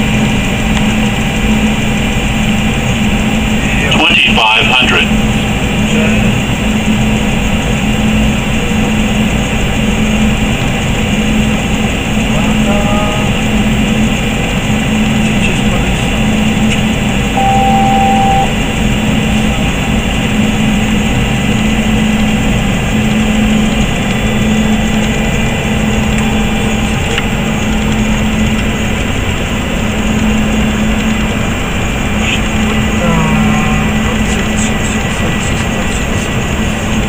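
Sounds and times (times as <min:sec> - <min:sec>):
pulsing low hum: 0:00.0 - 0:37.0
short single tone: 0:17.4 - 0:18.7.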